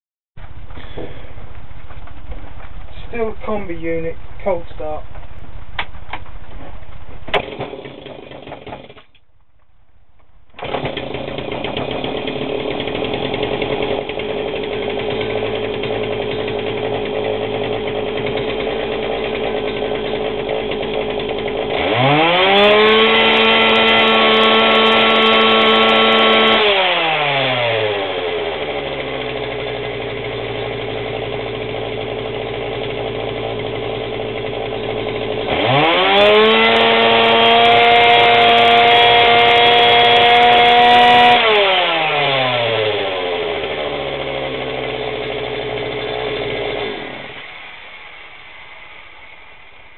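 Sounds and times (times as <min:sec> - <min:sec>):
small two-stroke engine revving: 0:07.4 - 0:09.0, 0:10.6 - 0:47.9.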